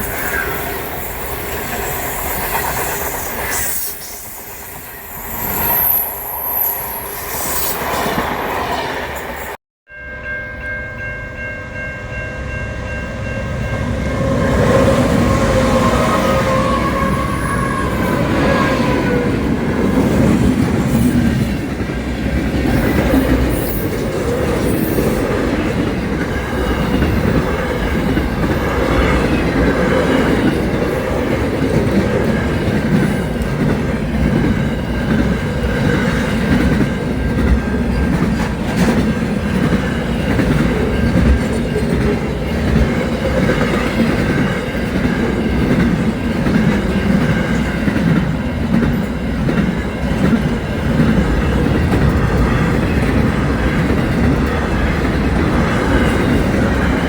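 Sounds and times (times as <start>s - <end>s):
train wheels clacking on rails: 14.5s - 57.0s.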